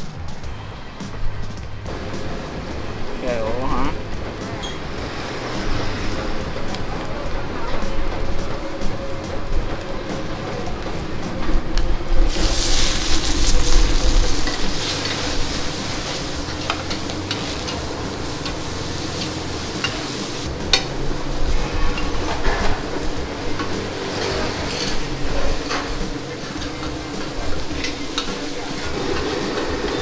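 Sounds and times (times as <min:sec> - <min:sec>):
food sizzling in hot oil: 0:12.2 - 0:30.0
metal spatula scraping pan: 0:21.5 - 0:30.0.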